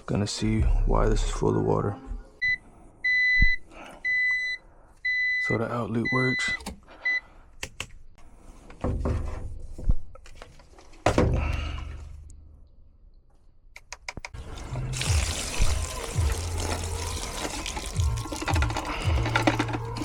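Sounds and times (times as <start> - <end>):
water pouring and splashing: 14.4 - 20.0.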